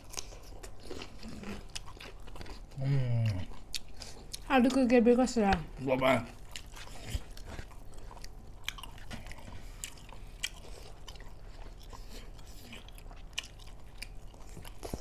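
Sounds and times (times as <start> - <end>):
people chewing food: 0.0 - 15.0.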